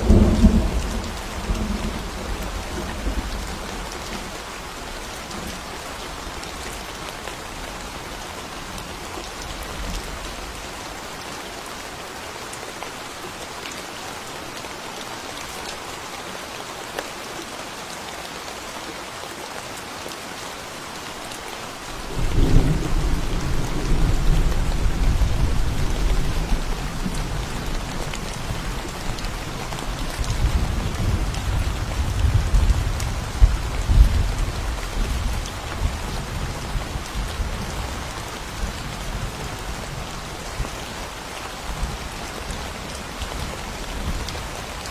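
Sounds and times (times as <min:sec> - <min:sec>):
thunder rumbling: 0:00.0 - 0:04.3, 0:22.1 - 0:37.0
rain falling on forest path: 0:00.0 - 0:44.9.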